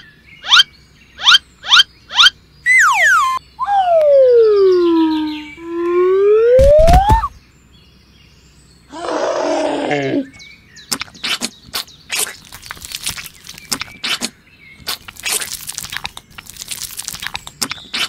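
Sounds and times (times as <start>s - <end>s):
growling roar: 8.9s - 10.3s
sticky slime clicks and crackles: 14.9s - 17.8s.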